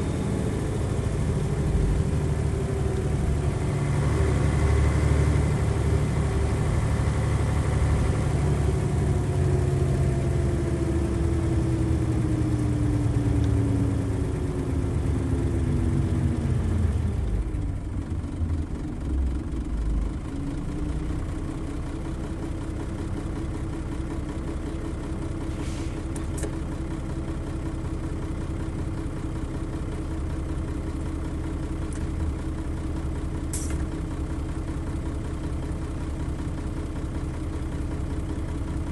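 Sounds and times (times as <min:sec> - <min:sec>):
diesel bus engine winding down: 0:00.0 - 0:38.9.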